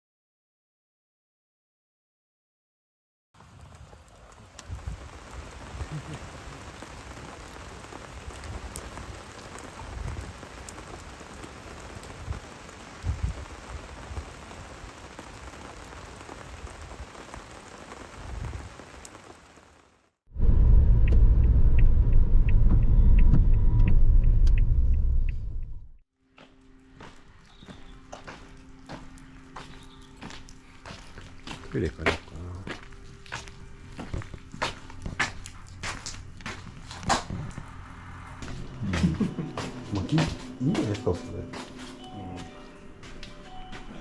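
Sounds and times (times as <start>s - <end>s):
rain falling: 3.4s - 20.2s, 27.0s - 43.8s
loud low rumble: 20.3s - 26.0s
low thumps: 20.4s - 26.0s.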